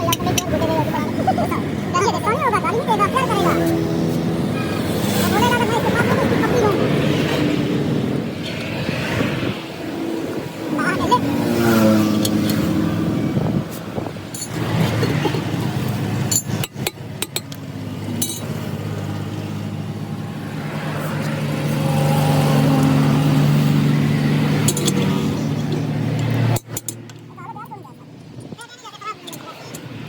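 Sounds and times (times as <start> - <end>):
engine running steadily: 0.0 - 30.0
sharp metallic clinks: 16.3 - 17.6.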